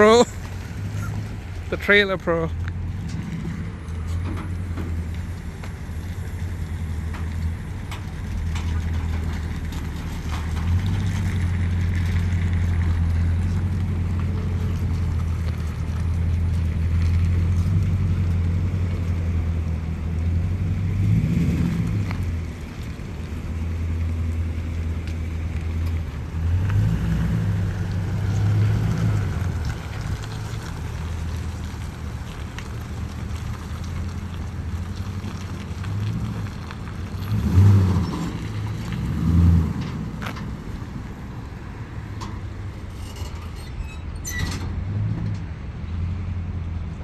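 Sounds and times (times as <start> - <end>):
vehicle engine revving: 8.5 - 22.8, 23.6 - 32.0, 32.6 - 40.5.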